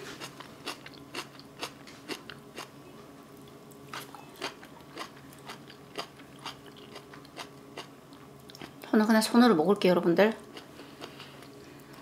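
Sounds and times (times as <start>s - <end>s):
wet crunchy chewing: 3.9s - 8.8s.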